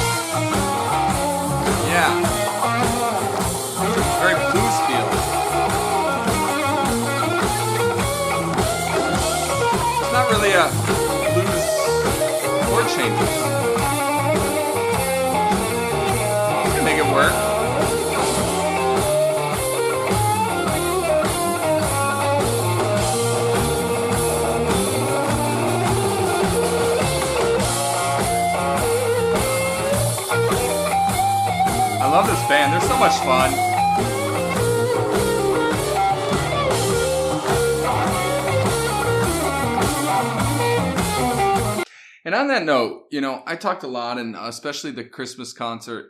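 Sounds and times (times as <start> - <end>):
bass: 0.0 - 41.8
drum kit: 0.0 - 41.8
electric guitar: 0.0 - 41.8
live band playing blues: 0.0 - 41.8.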